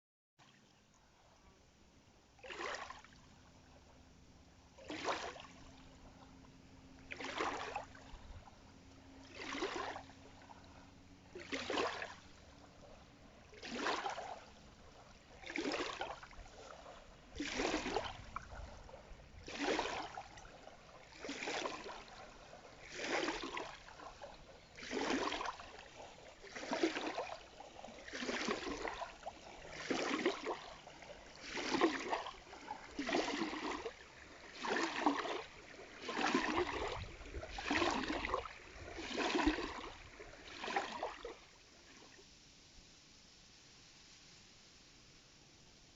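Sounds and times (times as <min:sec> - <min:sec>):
water splashing in strokes: 0:02.4 - 0:03.2, 0:04.8 - 0:06.2, 0:07.0 - 0:08.5, 0:09.2 - 0:42.1.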